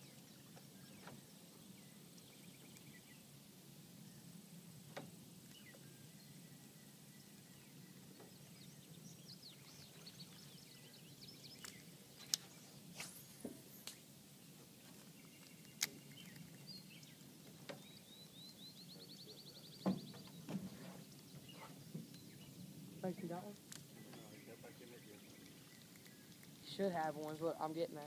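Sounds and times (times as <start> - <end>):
bird calls: 5.5 - 27.8.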